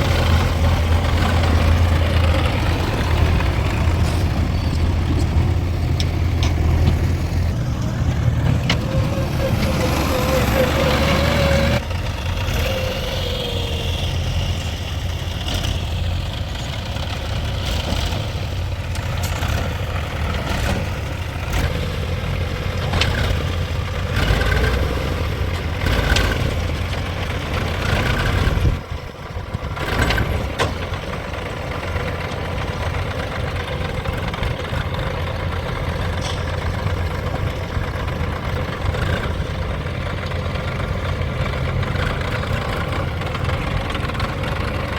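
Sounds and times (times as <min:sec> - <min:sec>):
diesel engine running: 0:00.0 - 0:44.9
metal knocks and clanks: 0:35.9 - 0:39.2.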